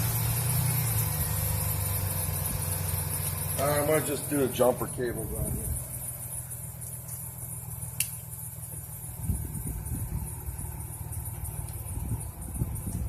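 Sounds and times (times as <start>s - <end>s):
truck engine idling: 0.0s - 13.0s
sharp click: 8.0s - 8.2s.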